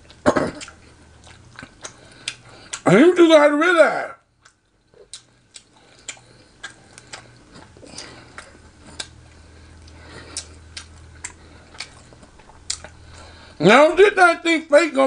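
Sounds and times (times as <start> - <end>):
wet chewing and licking sounds: 0.0 - 2.9, 4.4 - 13.4
faint low hum: 0.0 - 15.0.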